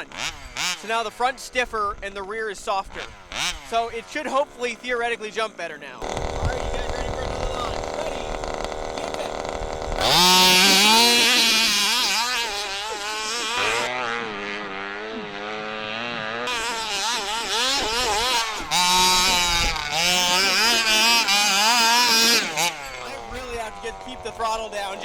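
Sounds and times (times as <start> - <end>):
two-stroke engine revving: 0.0 - 25.0.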